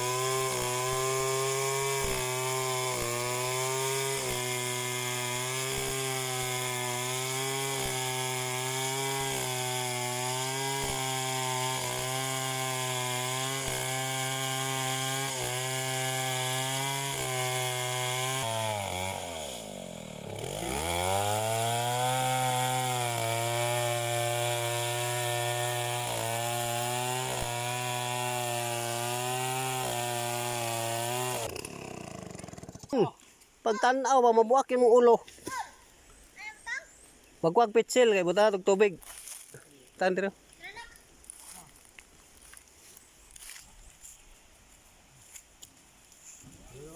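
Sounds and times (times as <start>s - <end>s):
chainsaw engine revving: 0.0s - 33.1s.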